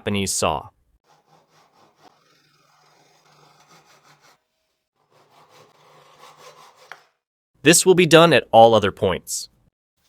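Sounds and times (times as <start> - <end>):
hand saw rasping strokes: 1.0 - 7.2.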